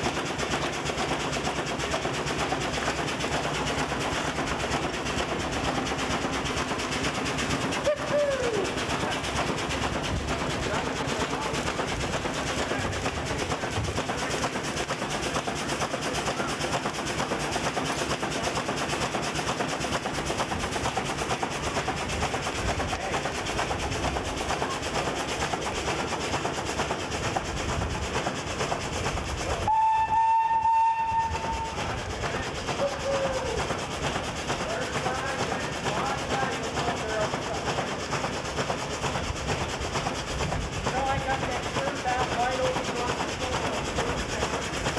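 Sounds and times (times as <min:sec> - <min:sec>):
steam pump hissing and beating: 0:00.0 - 0:44.9
steam whistle: 0:29.6 - 0:31.9.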